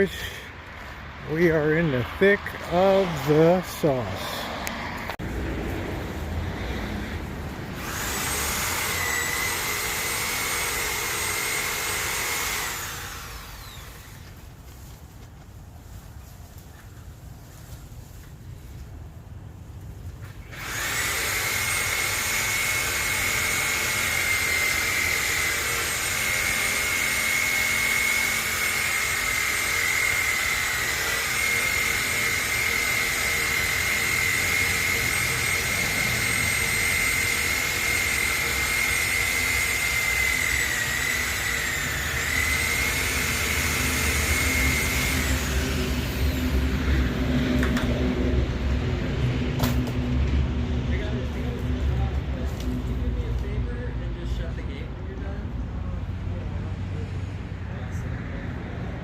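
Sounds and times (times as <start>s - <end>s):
power tool whining: 0.0s - 5.3s, 6.1s - 14.6s, 20.2s - 48.0s.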